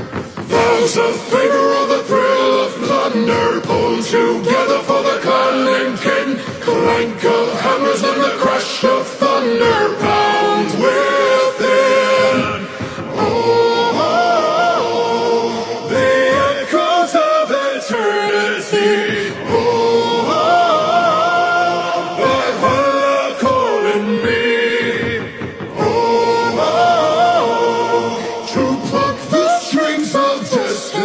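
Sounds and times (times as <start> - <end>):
choir singing: 0.0 - 31.0.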